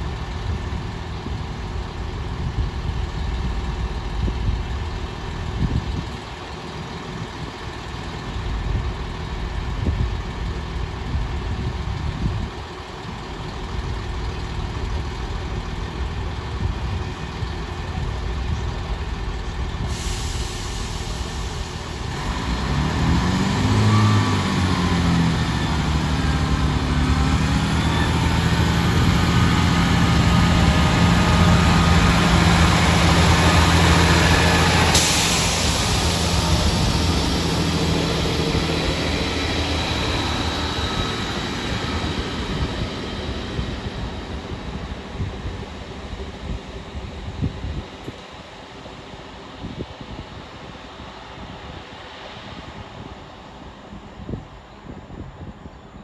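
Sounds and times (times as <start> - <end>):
train diesel engines: 0.0 - 56.0
sudden hiss: 14.0 - 24.9, 27.9 - 47.5.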